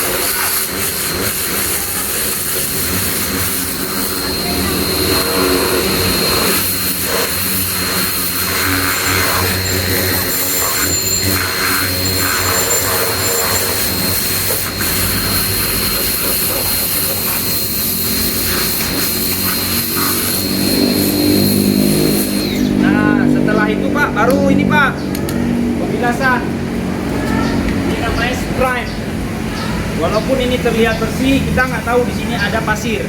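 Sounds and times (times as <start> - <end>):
water jet hissing: 0.0 - 22.8
pressure washer motor hum: 0.0 - 23.9.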